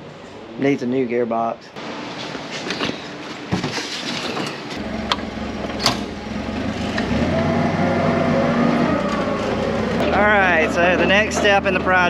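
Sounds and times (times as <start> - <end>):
engine running: 4.7 - 12.0.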